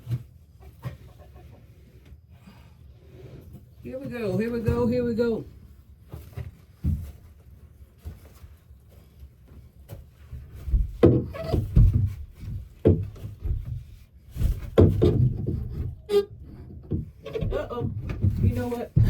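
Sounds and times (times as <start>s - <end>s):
wood knocking and scraping on wood: 0.0s - 2.2s, 6.0s - 19.0s.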